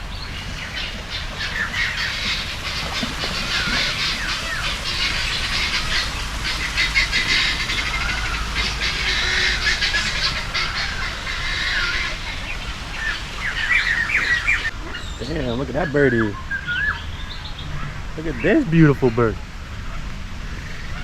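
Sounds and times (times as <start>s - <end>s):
low steady rumble: 0.0s - 15.1s
birds chirping and whistling: 0.0s - 19.2s.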